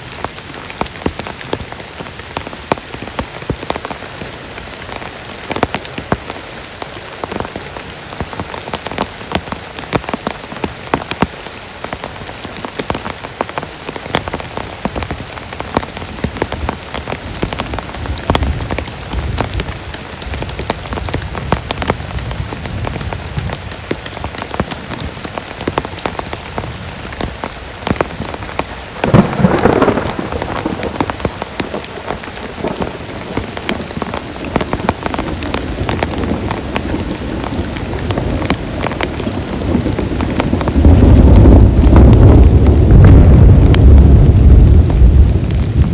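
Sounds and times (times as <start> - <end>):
heavy rain falling: 0.0 - 45.9
sharp raindrop impacts: 0.0 - 45.9
loud thunder clap: 29.0 - 32.0, 39.6 - 45.9.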